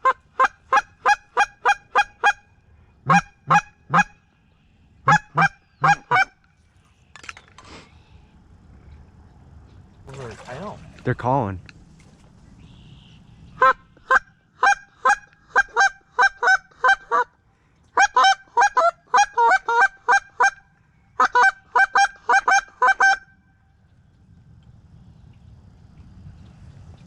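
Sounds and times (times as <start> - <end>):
geese honking: 12.7 - 17.3.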